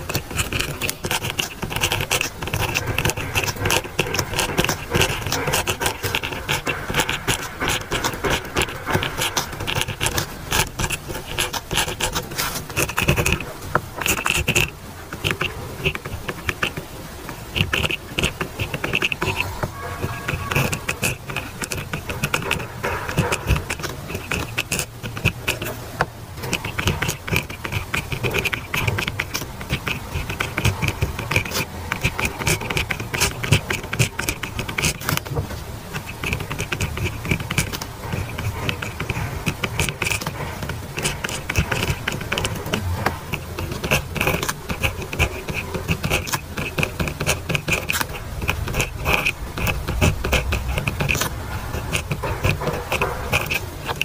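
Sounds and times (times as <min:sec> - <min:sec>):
pen scratching on paper: 0:00.0 - 0:54.0.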